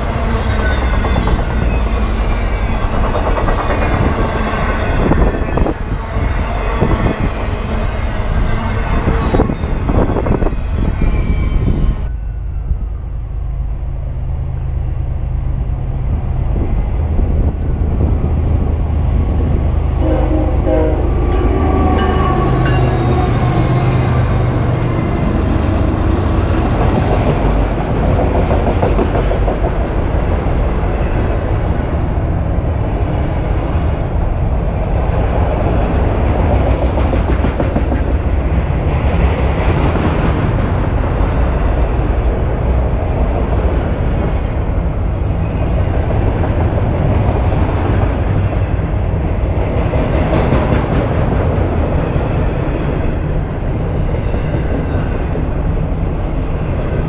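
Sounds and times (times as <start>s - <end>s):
diesel locomotive rumble: 0.0s - 57.0s
train horn: 4.0s - 10.6s, 19.9s - 24.5s.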